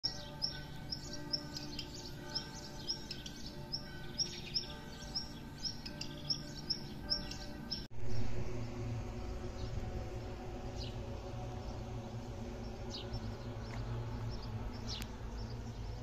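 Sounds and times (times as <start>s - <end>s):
small bird chirping: 0.0s - 7.9s
soft background music: 0.0s - 16.0s.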